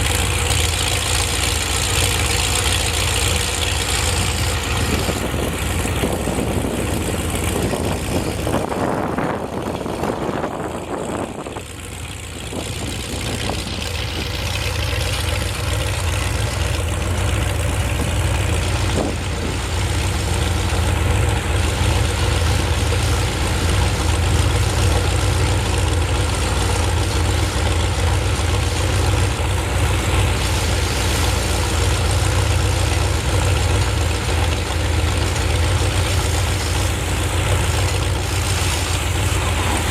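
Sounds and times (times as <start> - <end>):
heavy engine idling: 0.0 - 39.9.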